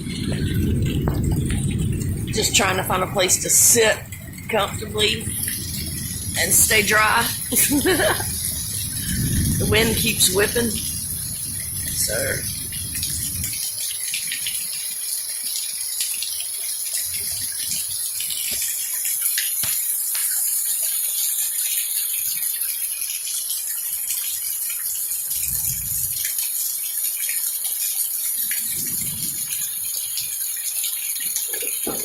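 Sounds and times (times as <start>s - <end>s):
thunder rumbles: 0.0s - 14.5s, 25.3s - 26.3s, 28.4s - 30.4s
heavy rain: 0.0s - 32.0s.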